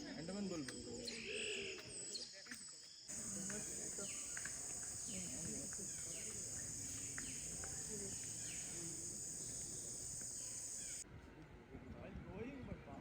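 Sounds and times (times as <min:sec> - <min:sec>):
forest insects droning: 0:03.1 - 0:11.0
short falling calls: 0:03.1 - 0:11.0.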